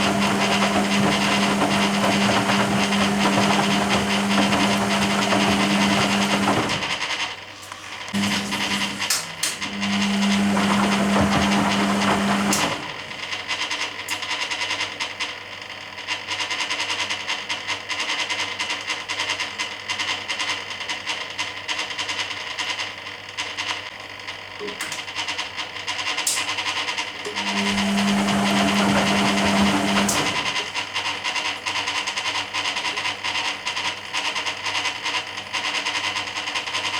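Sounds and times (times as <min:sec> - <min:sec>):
washing machine motor humming: 0:00.0 - 0:13.7, 0:27.1 - 0:33.8
noisy water wash: 0:08.2 - 0:12.5.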